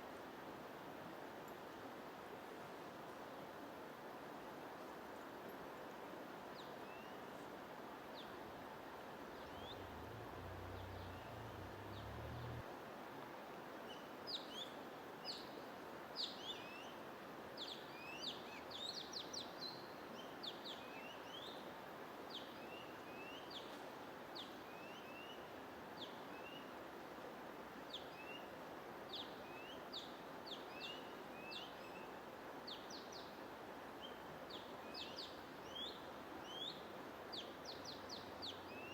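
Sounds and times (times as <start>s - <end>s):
songbirds chirping: 9.2s - 12.7s, 34.0s - 38.9s.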